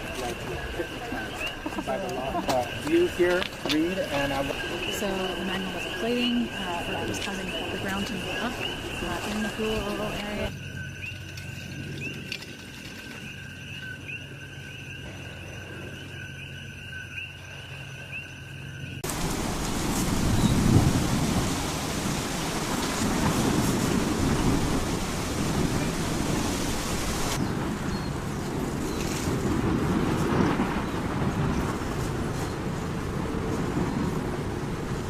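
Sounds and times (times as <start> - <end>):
lava fountain roaring: 19.0 - 27.6.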